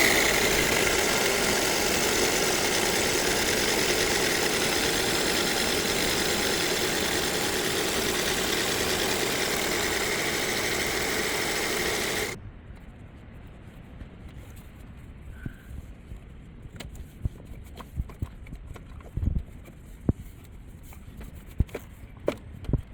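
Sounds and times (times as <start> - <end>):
alternator whine: 0.0 - 12.4
car engine idling: 0.0 - 12.4.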